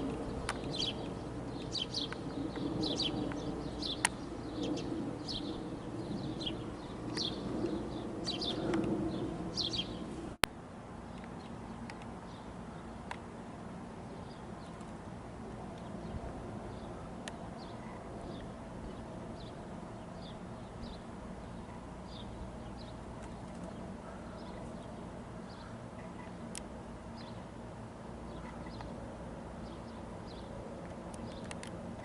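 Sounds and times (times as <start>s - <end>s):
small bird chirping: 0.0s - 10.0s, 28.3s - 29.0s.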